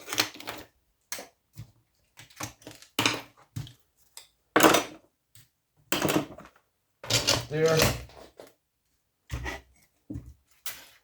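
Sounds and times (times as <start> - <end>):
knocks and clatters of parts: 5.9 - 8.6.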